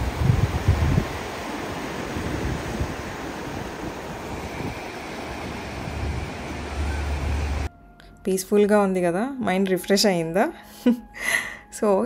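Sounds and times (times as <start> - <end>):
waves washing on rocky shore: 0.0 - 7.7
wind on microphone: 0.0 - 7.7.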